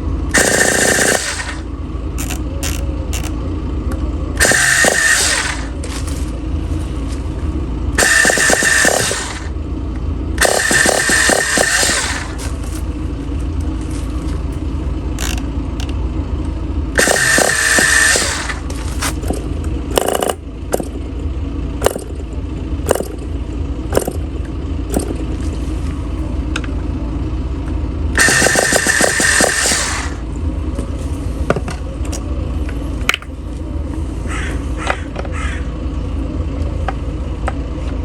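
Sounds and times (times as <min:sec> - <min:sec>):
loud whirring bursts: 0:00.0 - 0:03.4, 0:04.4 - 0:06.2, 0:07.9 - 0:12.9, 0:15.2 - 0:15.9, 0:16.9 - 0:21.2, 0:21.8 - 0:25.6, 0:28.1 - 0:30.4
model engine low rumble: 0:00.0 - 0:38.0
sharp clicks: 0:02.2 - 0:03.3, 0:04.4 - 0:05.6, 0:08.0 - 0:09.5, 0:10.4 - 0:12.4, 0:15.2 - 0:16.0, 0:17.0 - 0:18.6, 0:19.2 - 0:21.0, 0:21.8 - 0:22.2, 0:22.9 - 0:23.3, 0:24.0 - 0:24.2, 0:24.9 - 0:25.2, 0:28.2 - 0:30.1.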